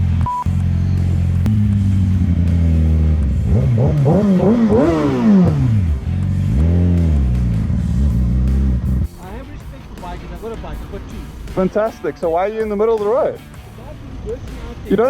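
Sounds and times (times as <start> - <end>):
motorcycle engine revving: 0.0 - 11.9
motorcycle engine idling: 0.0 - 15.0.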